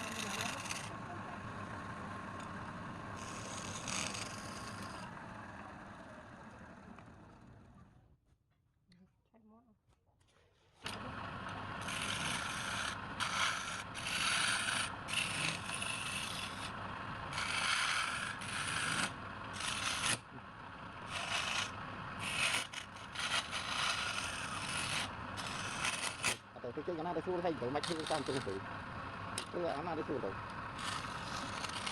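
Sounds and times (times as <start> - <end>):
turning tool scraping wood: 0.0 - 5.1, 11.8 - 20.3, 21.0 - 28.6, 29.4 - 31.9
wood lathe running: 0.0 - 6.8, 10.9 - 31.9.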